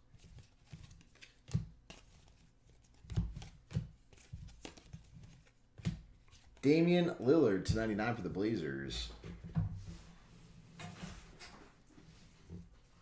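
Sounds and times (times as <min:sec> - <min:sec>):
cards tapping and sliding: 0:00.2 - 0:06.6.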